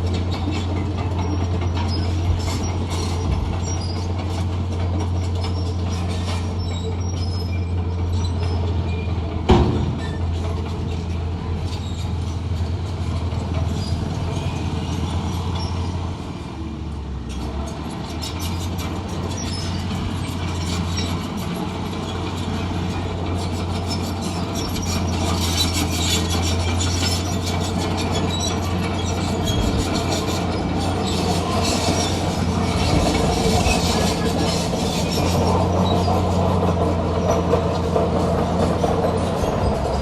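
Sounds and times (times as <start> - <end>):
heavy diesel machine running: 0.0 - 40.0
loud metal clank: 9.5 - 10.4.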